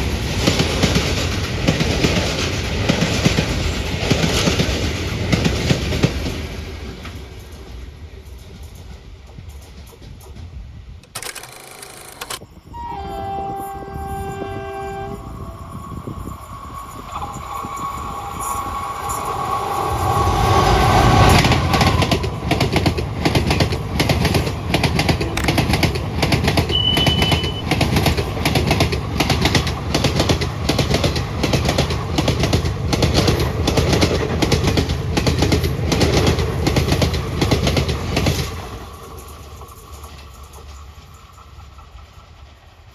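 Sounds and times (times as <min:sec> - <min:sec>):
train wheels clickety-clack: 0:00.0 - 0:12.4, 0:15.7 - 0:42.9
train horn: 0:12.6 - 0:19.2, 0:24.9 - 0:28.0.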